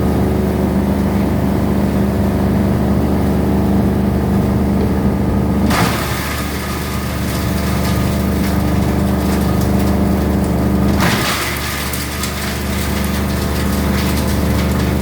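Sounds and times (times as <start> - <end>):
machine motor hum: 0.6 - 15.0.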